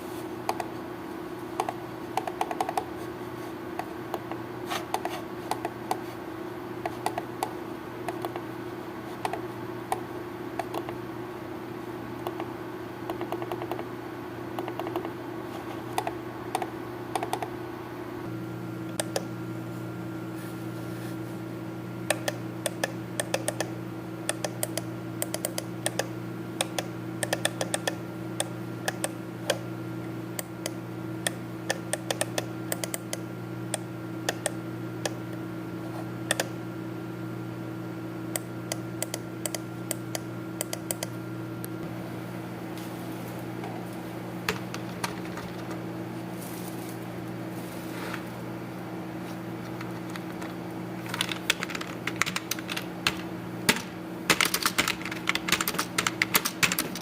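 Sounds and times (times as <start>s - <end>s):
steady low hum: 0.0s - 57.0s
typing on computer keyboard: 1.6s - 2.9s, 50.1s - 57.0s.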